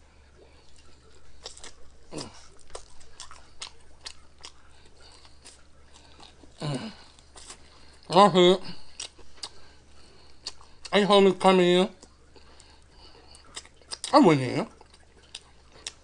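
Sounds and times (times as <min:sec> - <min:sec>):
crisp chewing crunches: 0:00.4 - 0:11.0, 0:11.9 - 0:16.0
person humming: 0:06.6 - 0:07.0
wet mouth clicks: 0:10.3 - 0:10.9, 0:14.8 - 0:16.0.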